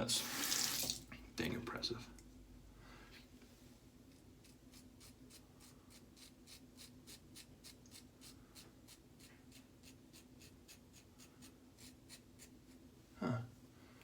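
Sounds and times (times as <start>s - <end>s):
razor scraping stubble: 4.4s - 12.8s.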